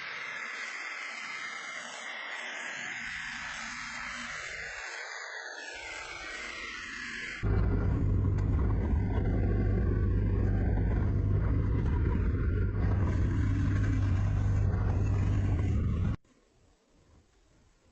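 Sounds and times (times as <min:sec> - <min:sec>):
power tool motor humming: 0:07.4 - 0:16.2.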